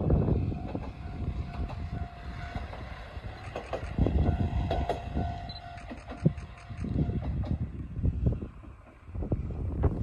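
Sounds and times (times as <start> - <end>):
diesel railcar rumbling past: 0.0 - 10.0.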